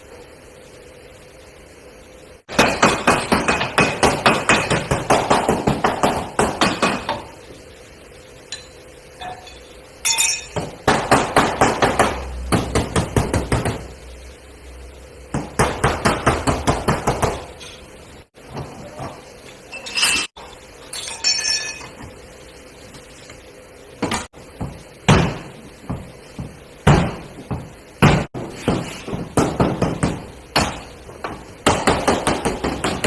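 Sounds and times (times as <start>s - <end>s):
hammer beating sheet metal: 2.5s - 7.2s, 10.1s - 13.9s.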